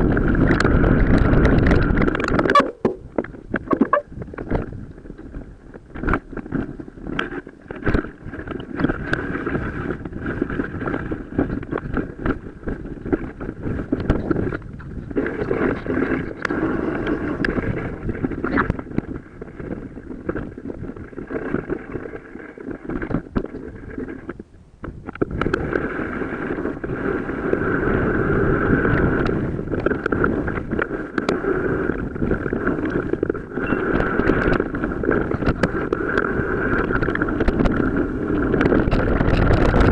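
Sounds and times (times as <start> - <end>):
tyre and drivetrain rush: 0.0 - 2.5, 25.1 - 39.9
wind buffeting microphone: 0.0 - 39.9.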